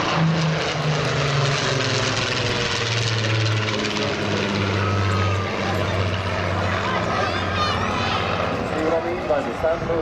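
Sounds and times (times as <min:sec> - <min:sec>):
aircraft piston engines: 0:00.0 - 0:10.0.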